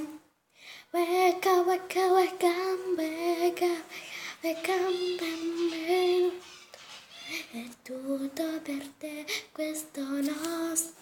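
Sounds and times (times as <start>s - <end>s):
girl singing: 0.0s - 6.6s, 7.2s - 11.0s.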